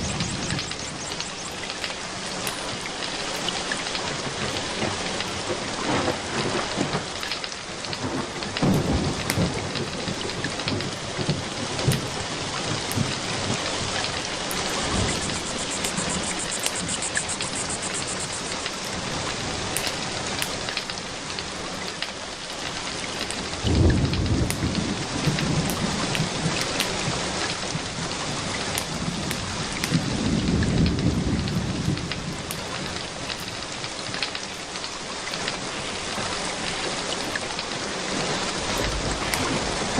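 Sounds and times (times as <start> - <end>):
thunder clap: 0.0 - 1.9, 7.9 - 19.2, 23.6 - 33.1, 38.2 - 39.9
thunder rumbling: 0.0 - 7.2, 7.9 - 19.7, 23.4 - 33.7, 38.0 - 39.9
steady rain: 0.0 - 39.9.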